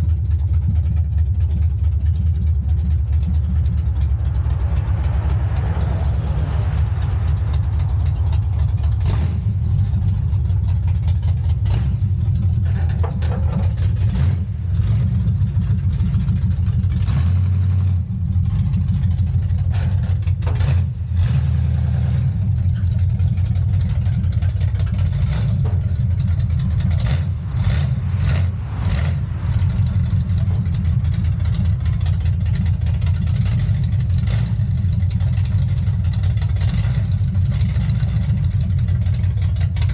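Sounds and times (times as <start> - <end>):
truck engine running: 0.0 - 39.9
metallic clicks and knocks: 10.4 - 14.4.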